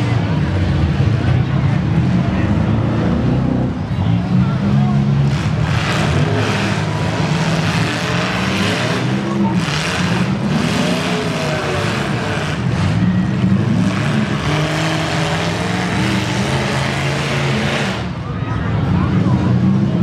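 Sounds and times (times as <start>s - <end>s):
car engines revving together: 5.1s - 18.2s.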